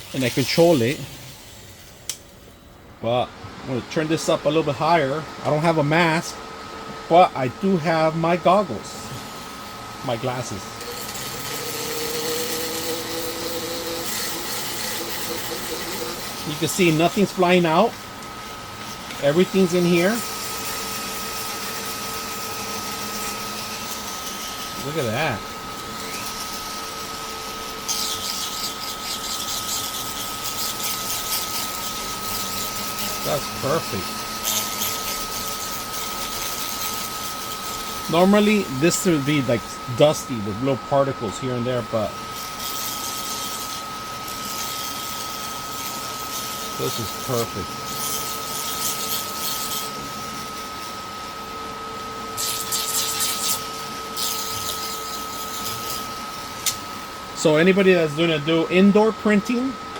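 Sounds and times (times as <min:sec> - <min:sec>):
rotary sanding tool grinding: 0:00.0 - 0:02.2, 0:07.9 - 0:59.6
dust collector fan whining: 0:00.0 - 0:59.9.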